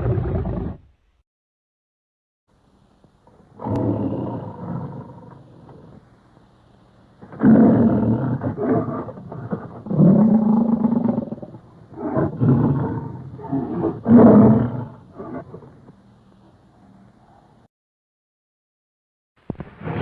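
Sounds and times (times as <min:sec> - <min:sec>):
lion roaring and growling: 0:00.0 - 0:00.9, 0:03.6 - 0:06.0, 0:07.2 - 0:15.9.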